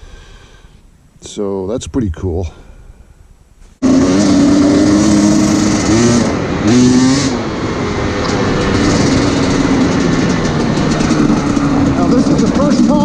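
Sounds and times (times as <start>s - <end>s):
dirt bike engine revving: 3.8s - 13.0s.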